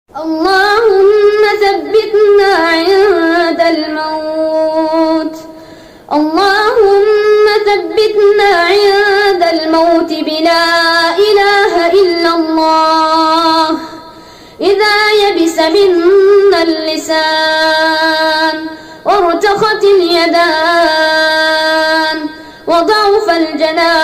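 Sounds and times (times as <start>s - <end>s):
person chanting unaccompanied: 14.6s - 24.0s.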